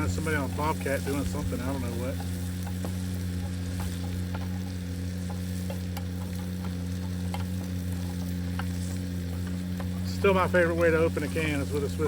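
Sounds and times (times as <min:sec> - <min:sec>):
loader engine droning: 0:00.0 - 0:12.0.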